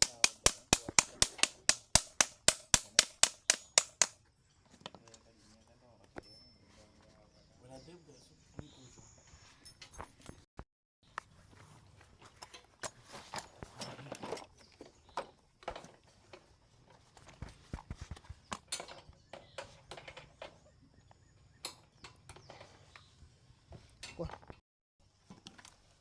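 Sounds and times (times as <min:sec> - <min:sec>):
metal tools knocking and clicking: 0:00.0 - 0:04.2.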